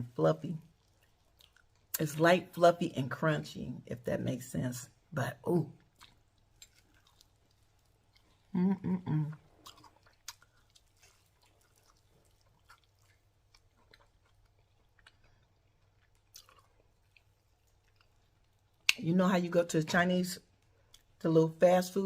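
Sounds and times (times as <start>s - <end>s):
person chewing crispy food: 0.6s - 2.0s, 5.8s - 8.6s, 9.2s - 19.0s, 20.5s - 21.2s.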